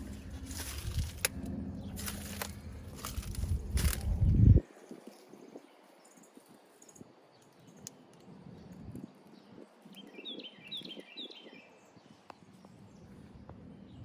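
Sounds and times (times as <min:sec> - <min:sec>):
bird chirping: 0:05.1 - 0:14.0.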